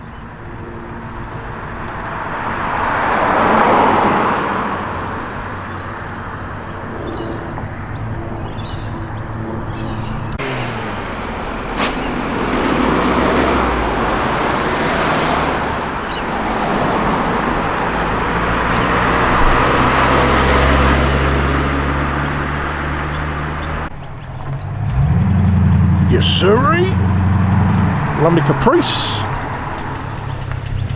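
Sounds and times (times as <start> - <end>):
car engines passing at low speed: 0.0 - 30.9.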